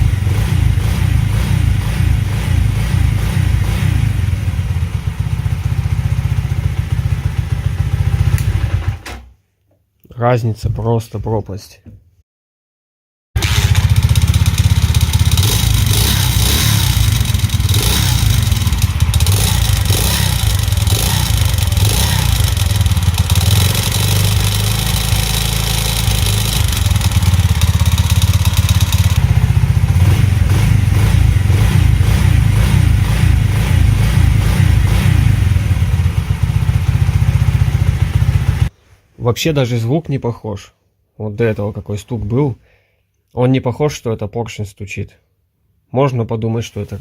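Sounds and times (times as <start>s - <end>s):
moped engine revving: 0.0s - 9.0s, 13.4s - 38.7s.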